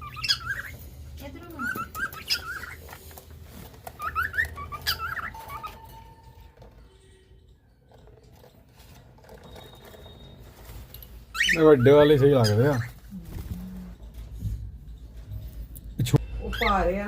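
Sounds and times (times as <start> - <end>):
small birds chirping: 0.0 - 6.1, 9.5 - 14.0.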